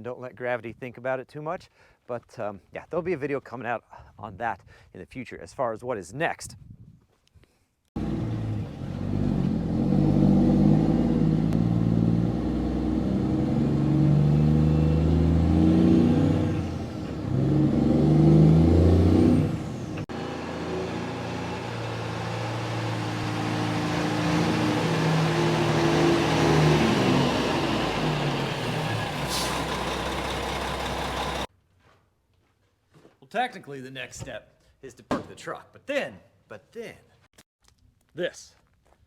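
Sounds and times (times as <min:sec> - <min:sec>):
truck diesel engine accelerating: 0:08.0 - 0:31.5.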